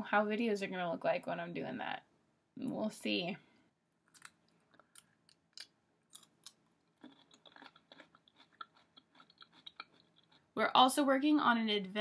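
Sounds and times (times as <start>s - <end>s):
pickle crunching and chewing: 4.0s - 10.6s.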